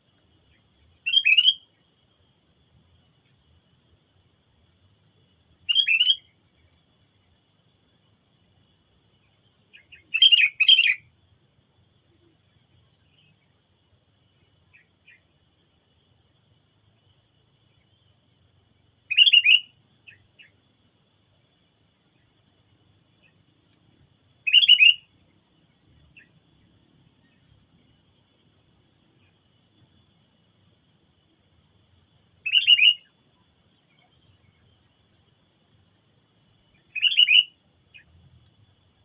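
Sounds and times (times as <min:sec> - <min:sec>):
bird chirping: 0:00.5 - 0:01.7, 0:05.7 - 0:06.3, 0:09.7 - 0:11.0, 0:19.1 - 0:20.5, 0:24.4 - 0:25.1, 0:32.4 - 0:33.1, 0:36.7 - 0:38.2.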